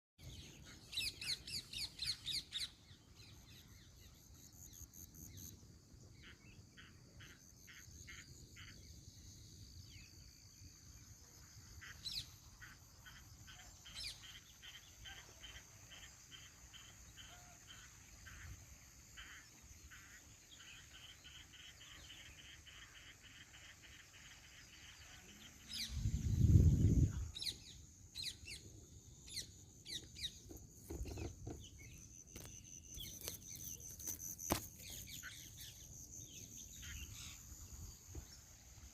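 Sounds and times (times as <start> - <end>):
birds chirping: 19.2 - 38.4.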